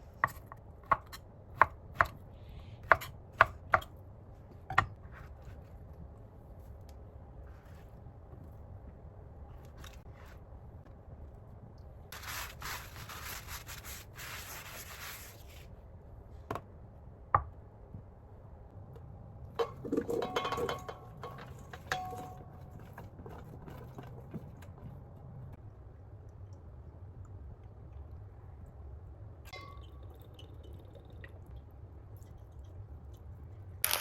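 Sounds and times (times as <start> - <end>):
scraping rubbing noise: 12.2 - 15.7.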